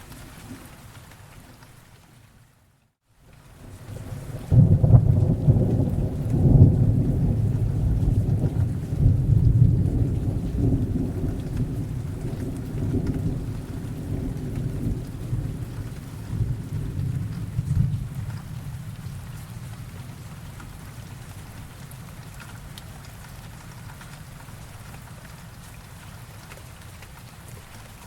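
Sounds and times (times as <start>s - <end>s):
steady rain: 0.0s - 28.0s
thunder rumbling: 3.9s - 21.1s.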